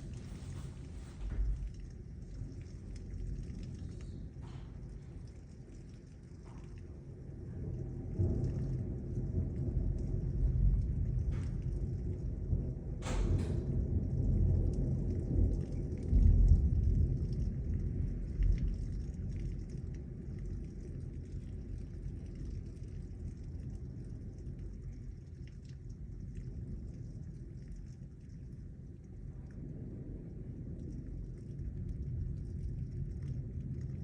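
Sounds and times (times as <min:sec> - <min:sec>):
heavy rain: 0:00.0 - 0:19.4
thunder rumbling: 0:00.0 - 0:25.2, 0:28.5 - 0:34.0.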